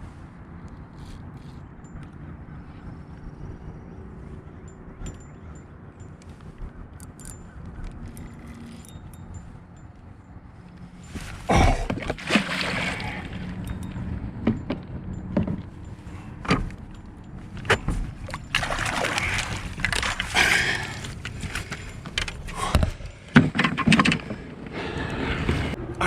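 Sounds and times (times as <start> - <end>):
water splashing: 11.5 - 13.6, 18.2 - 21.5.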